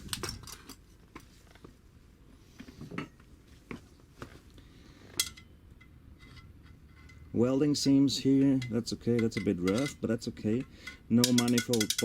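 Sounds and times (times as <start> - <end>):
metallic clinks and knocks: 5.1 - 7.3, 8.3 - 12.0.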